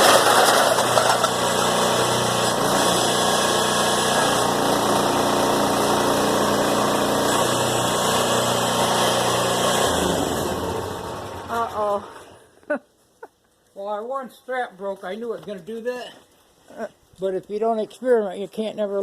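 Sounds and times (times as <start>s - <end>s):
baler motor running: 0.0s - 12.5s.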